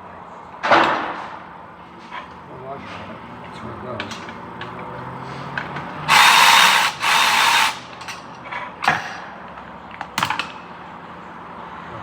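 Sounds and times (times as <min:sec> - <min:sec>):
power tool running: 0:02.8 - 0:08.1.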